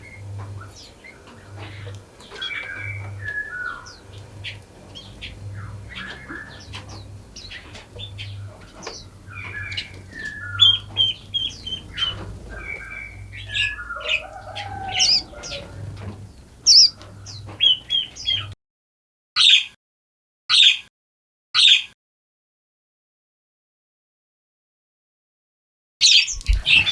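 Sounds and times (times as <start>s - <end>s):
forest birds chirping and whistling: 0.0s - 18.6s, 26.0s - 26.9s.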